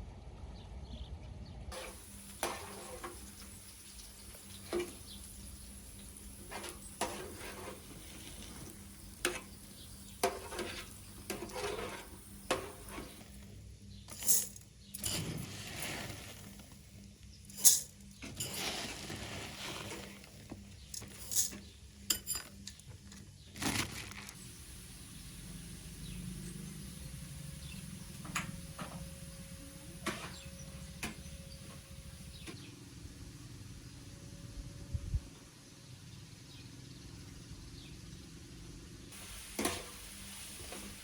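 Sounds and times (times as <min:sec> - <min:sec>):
utensils and cookware clinking: 0:01.7 - 0:13.5, 0:14.1 - 0:16.7, 0:17.4 - 0:23.4.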